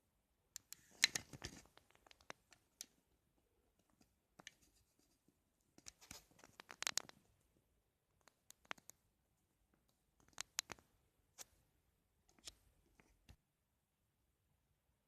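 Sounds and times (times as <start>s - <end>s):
scratchy clicking and rattling: 5.8s - 7.2s.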